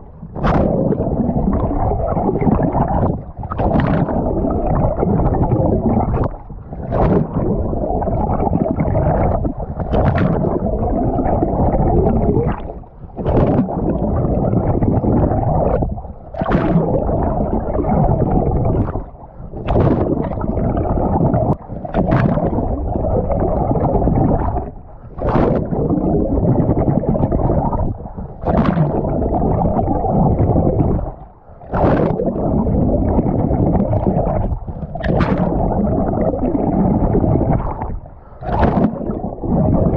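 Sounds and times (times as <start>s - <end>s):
water rushing and gurgling: 0.0s - 39.9s.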